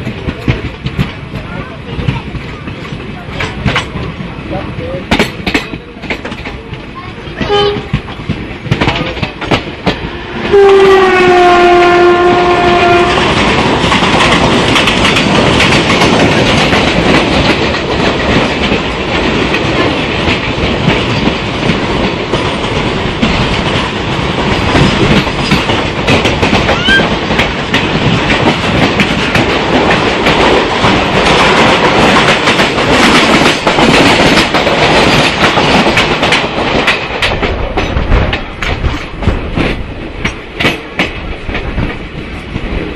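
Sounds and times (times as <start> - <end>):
train coaches rumbling past: 0.0 - 42.9
wheels clacking over rail joints: 0.0 - 42.9
locomotive horn: 7.4 - 8.0, 10.5 - 13.4.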